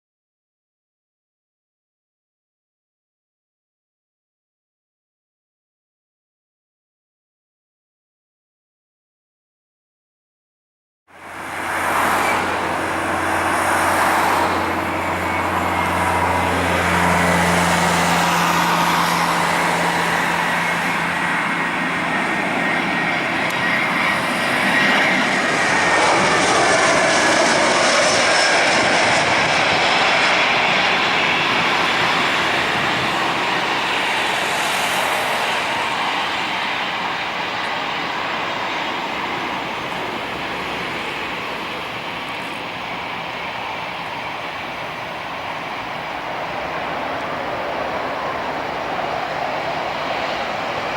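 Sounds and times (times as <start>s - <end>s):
jet engines running: 11.1s - 50.9s.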